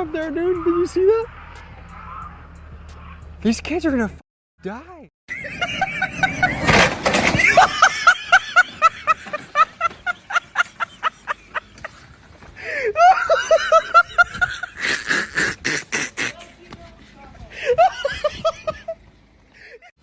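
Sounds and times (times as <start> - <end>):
person laughing hard: 5.3 - 16.6, 17.5 - 19.0.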